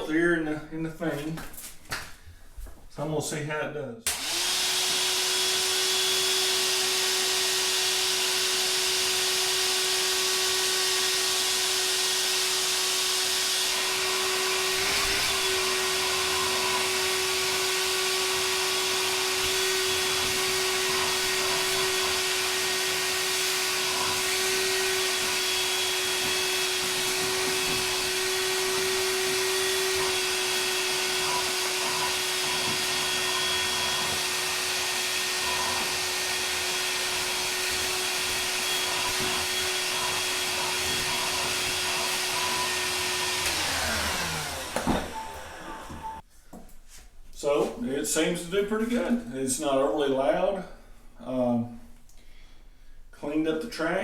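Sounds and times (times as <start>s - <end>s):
vacuum cleaner running: 4.1s - 46.2s.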